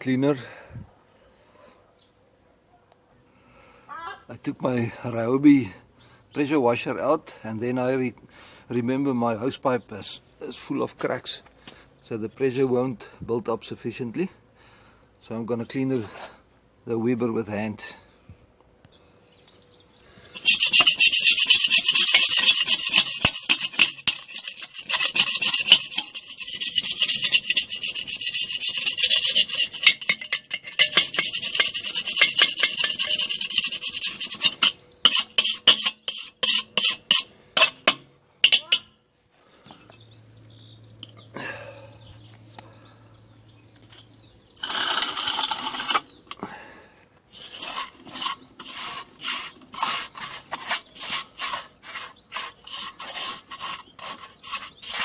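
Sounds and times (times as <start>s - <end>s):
scrubbing barbecue grill: 20.3s - 38.9s, 43.8s - 46.4s, 47.3s - 55.0s.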